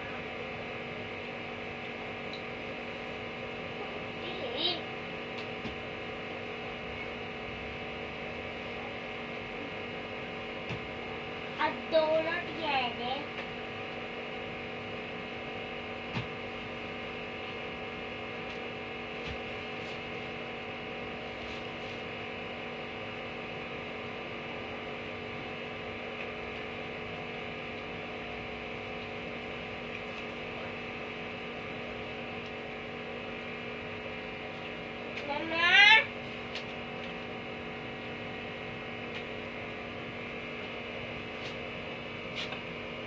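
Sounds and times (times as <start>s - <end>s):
electrical hum: 0.0s - 43.0s.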